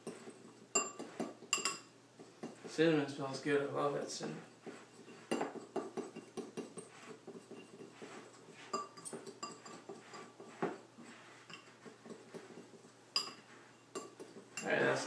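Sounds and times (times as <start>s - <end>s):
spoon clinking against bowl: 0.0s - 2.6s, 5.0s - 10.6s, 11.5s - 14.8s
spoon scraping in bowl: 0.0s - 2.8s, 4.1s - 15.0s.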